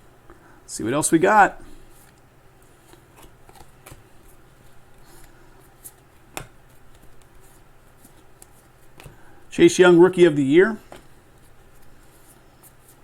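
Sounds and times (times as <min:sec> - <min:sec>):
trading cards sliding and rubbing: 0:01.7 - 0:09.3, 0:10.8 - 0:13.0
soft clicks of cards: 0:01.9 - 0:09.2.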